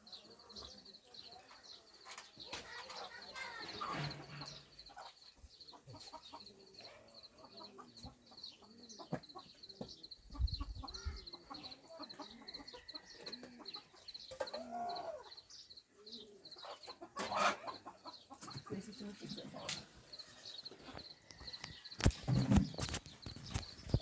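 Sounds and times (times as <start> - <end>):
chickens clucking: 0.0 - 24.0
rapid high-pitched chirping: 19.3 - 24.0.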